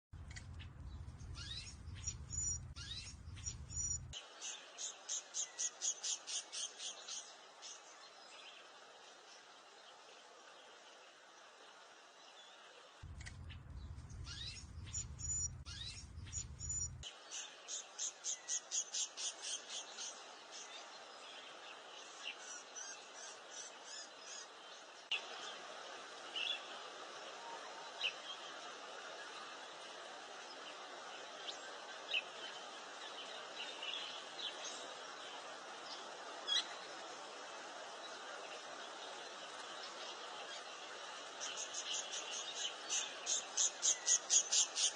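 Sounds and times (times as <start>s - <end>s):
songbirds chirping: 0.2s - 44.9s
steady background hiss: 0.4s - 44.9s
low rumble: 13.0s - 17.0s.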